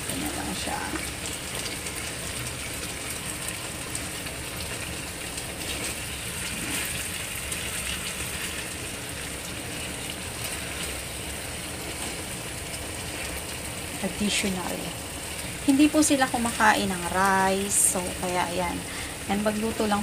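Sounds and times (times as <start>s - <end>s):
food sizzling in a frying pan: 0.0s - 20.0s.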